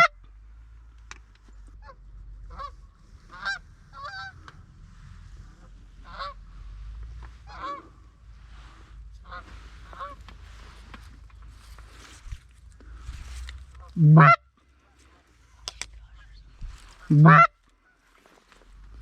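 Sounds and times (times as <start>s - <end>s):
geese honking: 1.8s - 4.5s, 6.0s - 6.5s, 7.4s - 8.1s, 9.2s - 10.4s, 13.8s - 14.4s, 17.0s - 18.3s.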